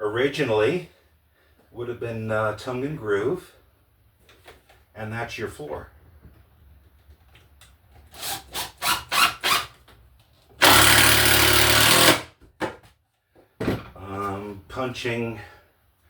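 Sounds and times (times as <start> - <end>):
power drill driving a screw: 8.1 - 9.7, 10.6 - 12.3.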